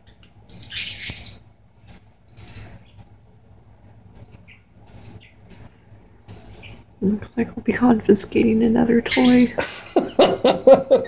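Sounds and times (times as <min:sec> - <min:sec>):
cage toy jingling and rattling: 0:00.6 - 0:03.4, 0:04.0 - 0:09.5.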